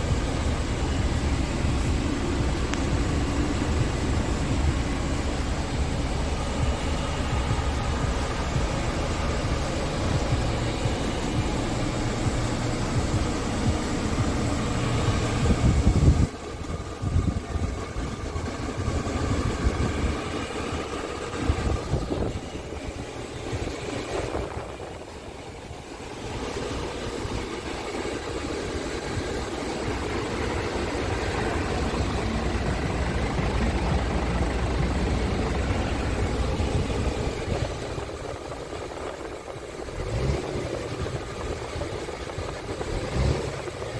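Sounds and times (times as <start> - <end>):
diesel truck engine running: 0.0 - 43.9.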